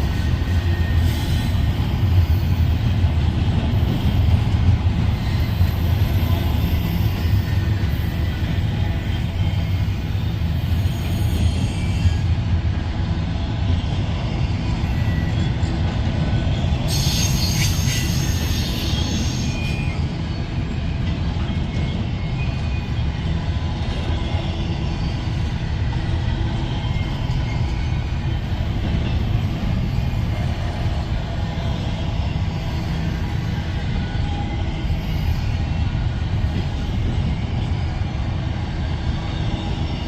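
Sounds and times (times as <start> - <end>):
train wheels rumbling on rail: 0.0 - 40.0
high-pitched wheel squeal: 16.9 - 21.2.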